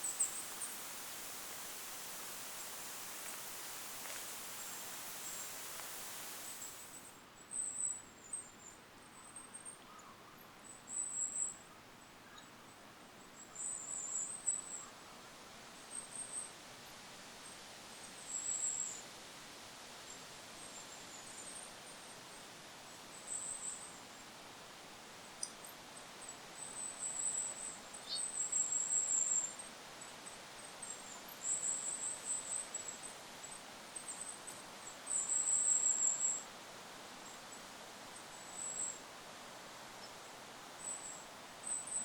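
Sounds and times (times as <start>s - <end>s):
bird high thin calls: 0.0s - 7.0s
wind noise hiss: 0.0s - 7.2s.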